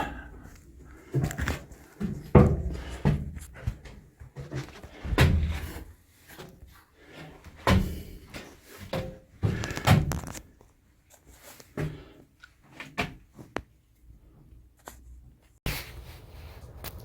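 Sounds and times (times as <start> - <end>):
heavy thuds and knocks: 2.0 - 3.9.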